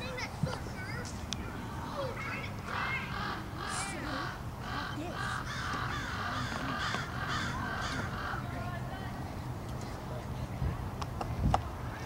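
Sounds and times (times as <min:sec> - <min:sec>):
bird harsh calls: 0:02.6 - 0:08.5.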